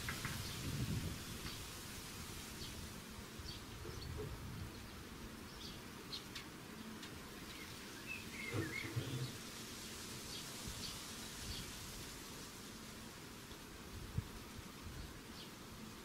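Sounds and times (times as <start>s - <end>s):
small birds chirping: 0.0s - 1.8s, 2.4s - 12.1s, 14.8s - 16.0s.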